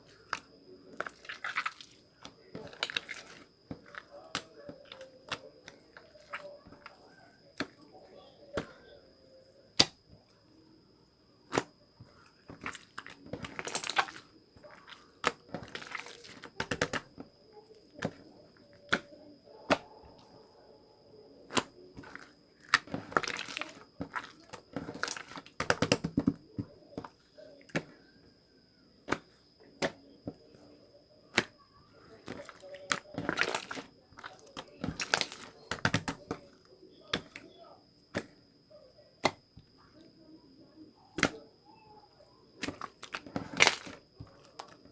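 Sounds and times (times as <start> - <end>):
slime crackling and squelching: 0.0 - 9.0, 11.5 - 20.4, 21.4 - 28.0, 31.3 - 38.4, 41.2 - 44.9.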